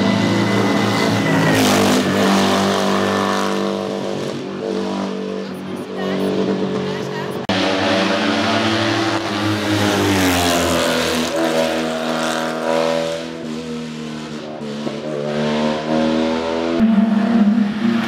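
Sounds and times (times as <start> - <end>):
racing car engine revving: 6.2 - 18.0.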